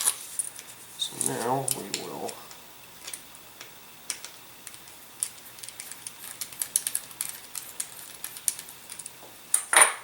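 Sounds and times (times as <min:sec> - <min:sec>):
small clicks and taps of model parts: 0:03.0 - 0:09.2.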